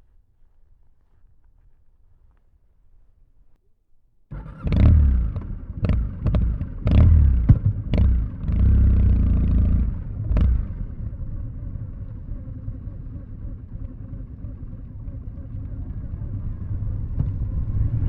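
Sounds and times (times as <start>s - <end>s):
motorcycle exhaust rumble: 4.3s - 18.0s.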